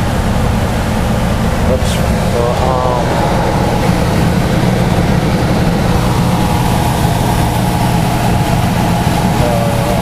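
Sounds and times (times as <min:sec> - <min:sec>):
furnace humming: 0:00.0 - 0:10.0
rush of air: 0:01.5 - 0:09.3.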